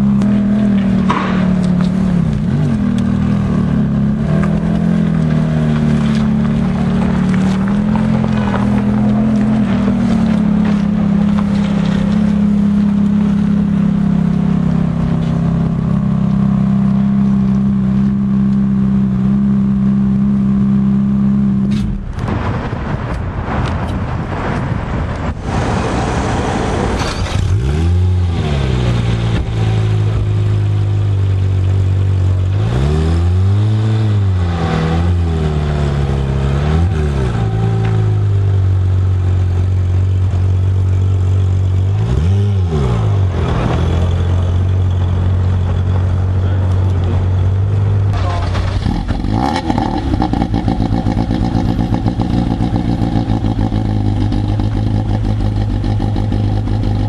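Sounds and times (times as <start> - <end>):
sports car engine idling: 0.0 - 22.2, 43.8 - 57.0.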